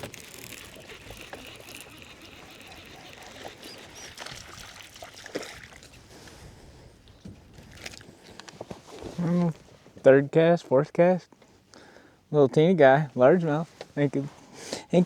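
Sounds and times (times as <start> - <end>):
water sloshing and trickling: 0.0 - 9.0.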